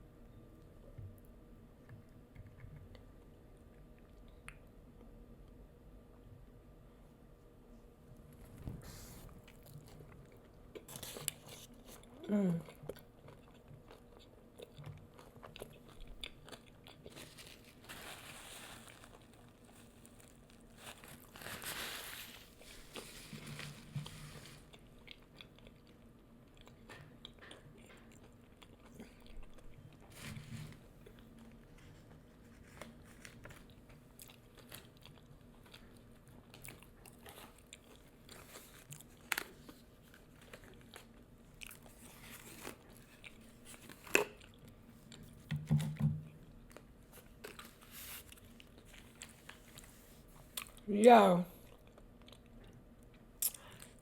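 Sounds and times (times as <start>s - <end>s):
crunchy fried food chewing: 9.2s - 45.5s, 46.3s - 50.8s, 51.6s - 54.0s.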